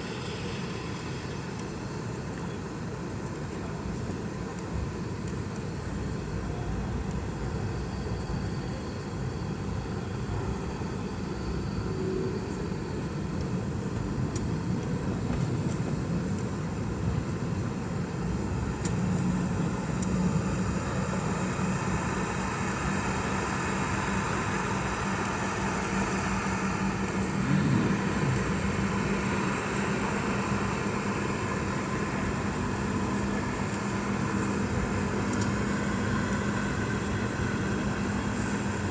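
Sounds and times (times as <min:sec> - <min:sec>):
jet engines running: 0:00.0 - 0:38.9.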